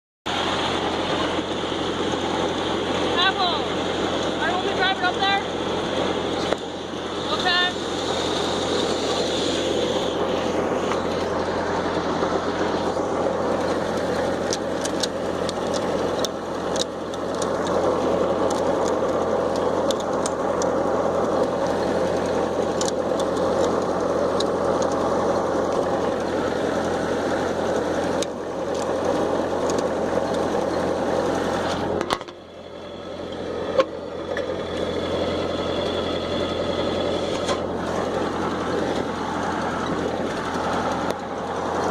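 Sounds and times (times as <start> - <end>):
tractor engine running: 0.3 - 41.9.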